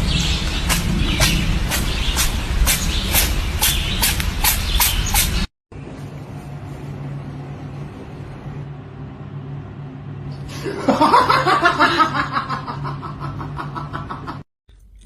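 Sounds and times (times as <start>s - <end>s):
low hum: 0.0s - 15.0s
loud laughter: 10.5s - 14.5s.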